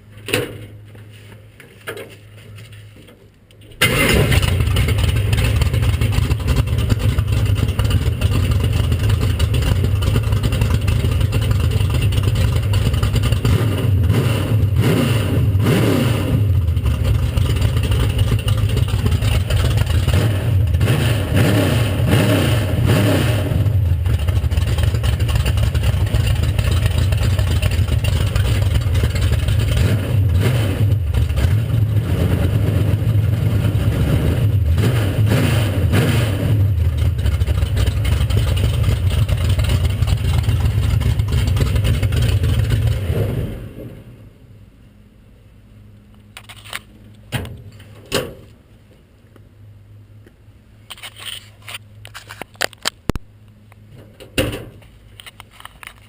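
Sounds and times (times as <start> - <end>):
engine starting and running: 1.8 - 44.6.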